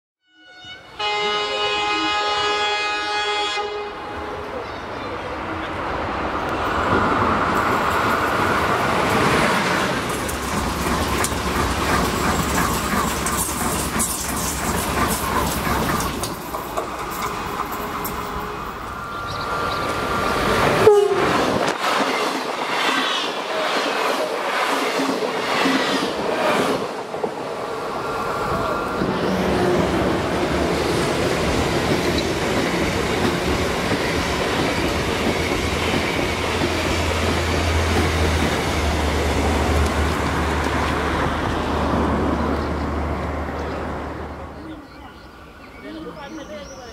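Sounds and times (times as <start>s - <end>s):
high two-note train horn: 0.2s - 4.5s, 20.8s - 21.4s
trains passing at speed: 0.6s - 46.9s
wheels clacking over rail joints: 6.8s - 18.5s, 30.2s - 42.7s.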